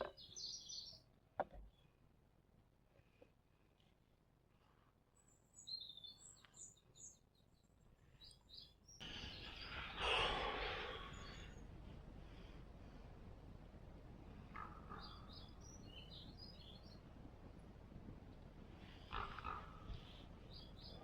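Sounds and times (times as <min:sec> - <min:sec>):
small bird chirping: 0:00.0 - 0:01.0, 0:05.2 - 0:11.6.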